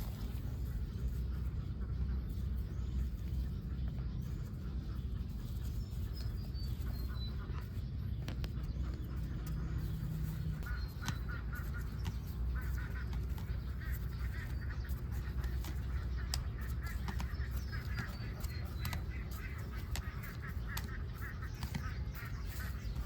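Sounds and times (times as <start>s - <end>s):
ducks quacking: 0.0s - 23.0s
steady low rumble: 0.0s - 23.0s
scattered clicks: 6.2s - 23.0s.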